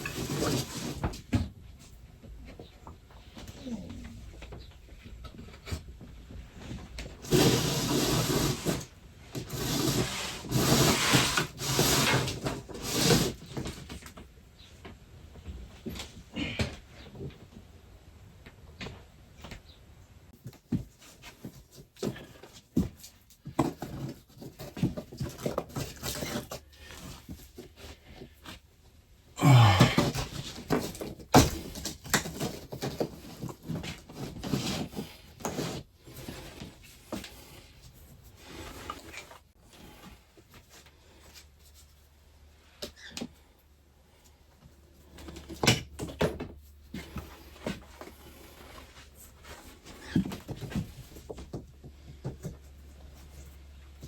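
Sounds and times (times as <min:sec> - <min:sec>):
cable rustling and scraping: 0:05.1 - 0:14.2, 0:29.5 - 0:43.5, 0:46.4 - 0:54.0.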